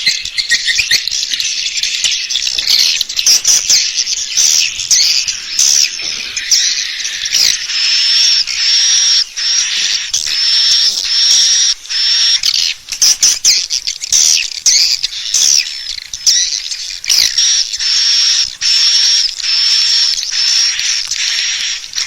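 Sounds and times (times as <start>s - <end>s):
swiftlet chirping calls: 0.0s - 22.0s.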